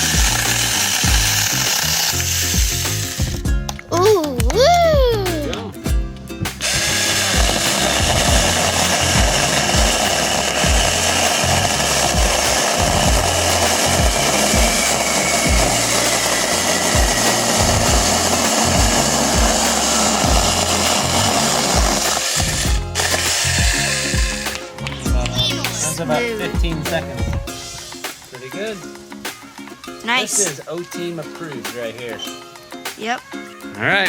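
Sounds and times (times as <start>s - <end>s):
mini chainsaw cutting wood: 0.0s - 3.3s, 6.6s - 26.0s
background music with steady beat: 0.0s - 34.0s.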